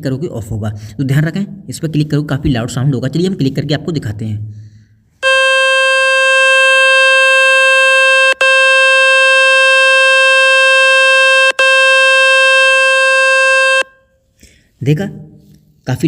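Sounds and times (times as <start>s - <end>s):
loud buzzy tone: 5.2s - 14.2s.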